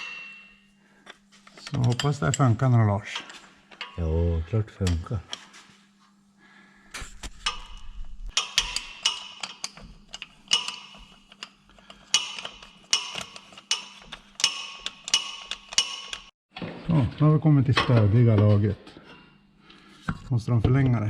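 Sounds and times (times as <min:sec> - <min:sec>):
hand ratchet clicking: 0:08.3 - 0:16.3.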